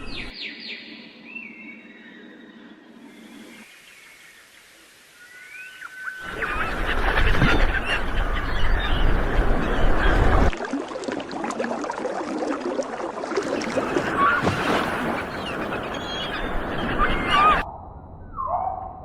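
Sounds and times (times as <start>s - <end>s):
flock of birds honking: 6.2s - 10.5s, 13.8s - 17.6s.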